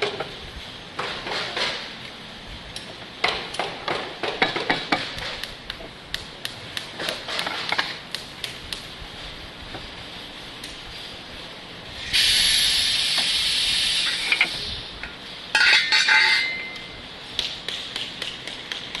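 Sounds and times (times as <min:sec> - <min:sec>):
machinery loud hissing: 0:09.4 - 0:15.4.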